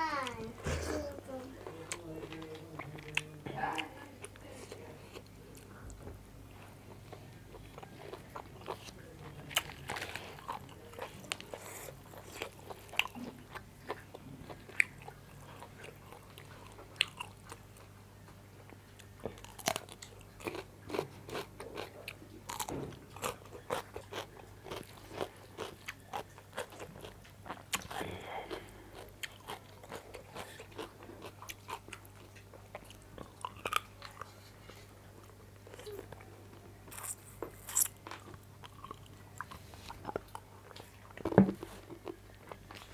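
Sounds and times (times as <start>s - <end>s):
crunchy chewing: 6.6s - 18.0s, 18.7s - 42.9s.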